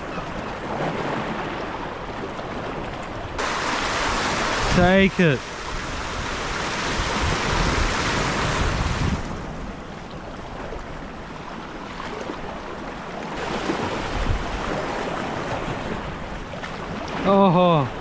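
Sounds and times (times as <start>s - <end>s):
sea washing against rocks: 3.4s - 10.2s, 13.3s - 18.0s.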